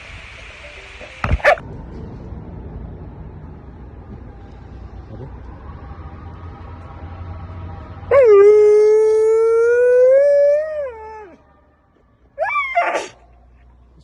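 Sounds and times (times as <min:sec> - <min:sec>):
dog howling: 0:08.1 - 0:11.4, 0:12.4 - 0:13.2.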